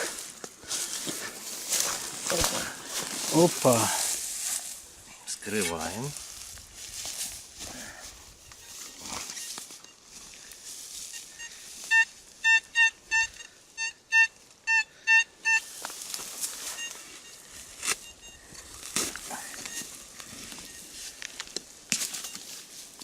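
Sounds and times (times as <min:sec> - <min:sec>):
faint rustling and scraping: 0:00.0 - 0:11.9
metal detector beeps: 0:08.3 - 0:15.8, 0:16.4 - 0:21.2, 0:22.0 - 0:22.7.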